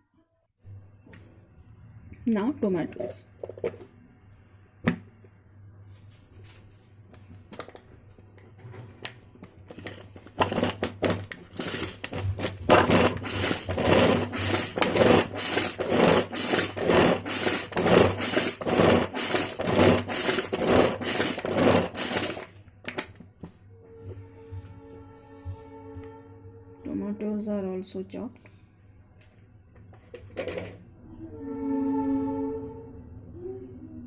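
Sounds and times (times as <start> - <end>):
cord chopper whirring and chopping: 10.4 - 22.5.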